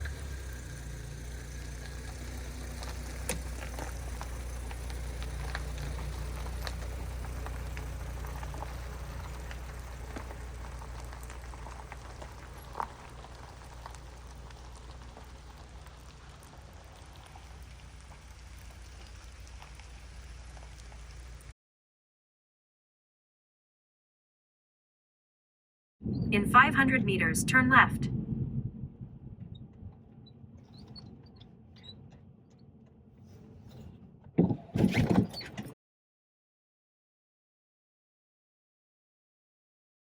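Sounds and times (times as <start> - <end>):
low steady rumble: 0.0 - 21.5, 26.0 - 34.7
rain drops ticking on a surface: 0.1 - 21.5.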